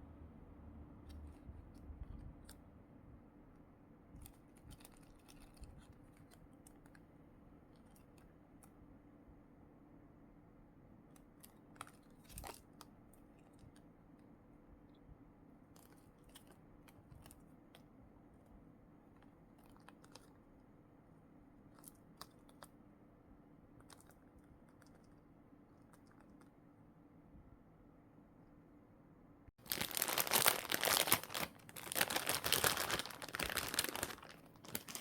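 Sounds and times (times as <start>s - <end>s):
low steady hum: 0.0s - 35.0s
plastic packaging crinkling: 4.2s - 7.0s, 11.4s - 13.8s, 29.6s - 35.0s.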